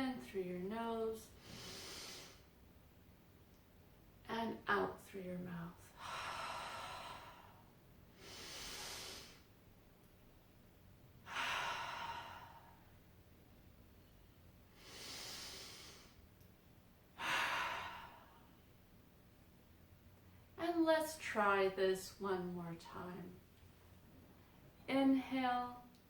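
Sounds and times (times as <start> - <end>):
woman breathing deeply: 1.3 - 2.6, 5.9 - 9.5, 11.2 - 13.0, 14.7 - 16.2, 17.2 - 18.6.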